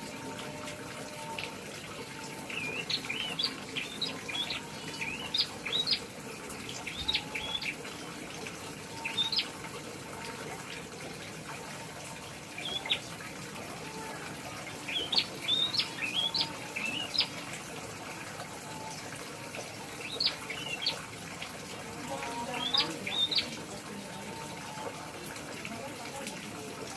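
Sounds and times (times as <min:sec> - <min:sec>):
songbird chirping: 0:14.8 - 0:17.4.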